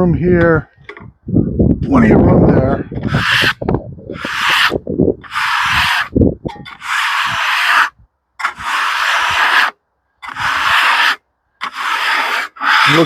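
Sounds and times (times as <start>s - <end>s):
hand scraper rasping on wood: 3.0s - 3.6s, 4.2s - 6.1s, 6.7s - 13.0s.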